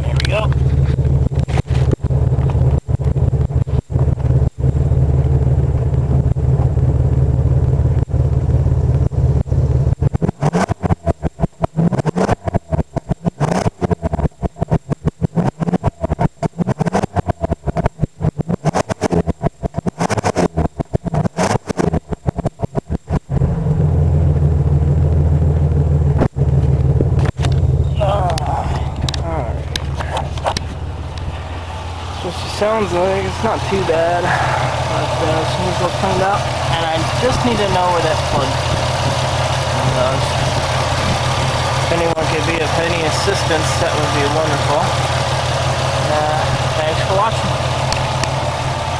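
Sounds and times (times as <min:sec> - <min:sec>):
car exhaust idling: 0:00.0 - 0:18.4, 0:22.0 - 0:48.9
person speaking: 0:27.9 - 0:30.7, 0:32.1 - 0:38.7, 0:39.7 - 0:40.5, 0:41.9 - 0:44.9.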